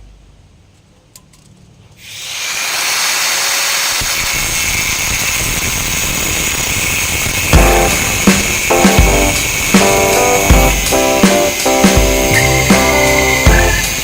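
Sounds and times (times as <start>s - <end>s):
power tool running: 2.0s - 14.0s.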